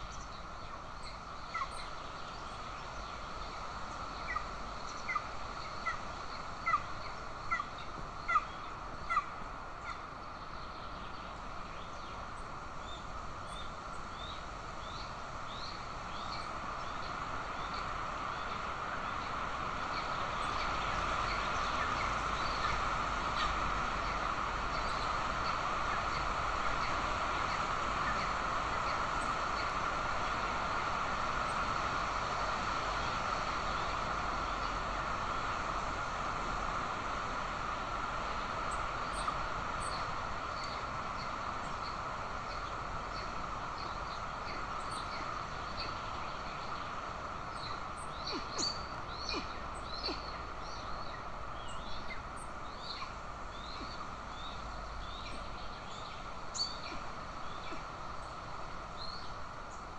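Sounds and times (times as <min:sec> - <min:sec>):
steady hiss: 0:00.0 - 0:59.9
eagle calling: 0:48.0 - 0:50.5.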